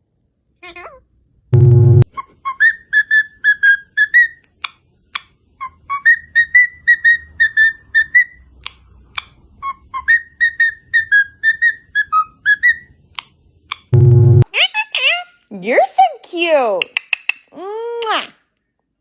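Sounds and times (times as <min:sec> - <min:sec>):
parrot whistling: 0:02.1 - 0:04.4, 0:05.6 - 0:08.5, 0:09.6 - 0:13.0.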